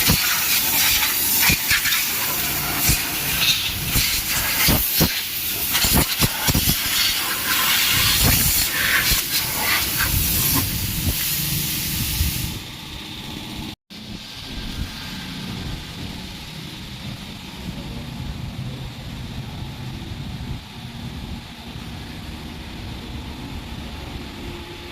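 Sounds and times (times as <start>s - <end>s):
high-pressure water spray hissing: 0.0s - 12.7s, 14.0s - 17.7s.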